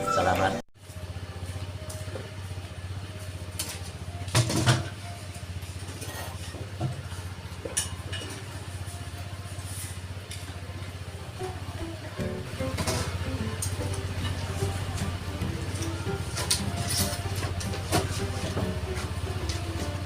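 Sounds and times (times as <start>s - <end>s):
low engine hum: 0.0s - 20.0s
metallic clanks and knocks: 12.5s - 20.0s.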